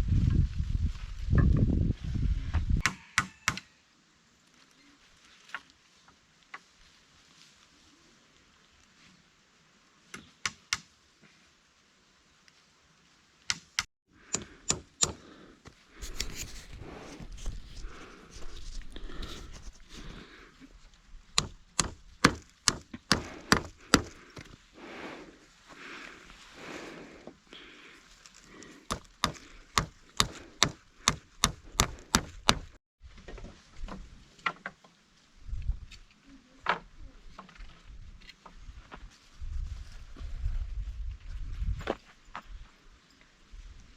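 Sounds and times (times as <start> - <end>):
rustling and crackling: 4.4 - 10.1, 15.7 - 43.9
wood being chopped: 21.4 - 24.5, 28.9 - 32.8.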